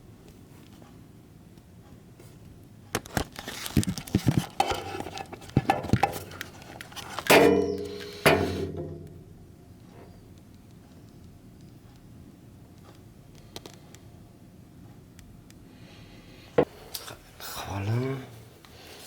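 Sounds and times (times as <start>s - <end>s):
metal clinks and knocks: 7.2s - 9.2s
loud ringing metallic clanks: 7.3s - 9.4s.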